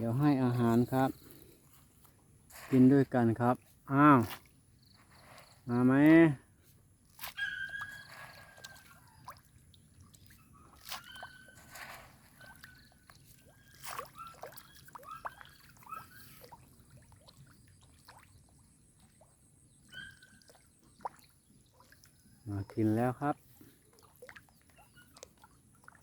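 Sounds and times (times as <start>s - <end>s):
fish splashing at water surface: 7.2s - 19.2s.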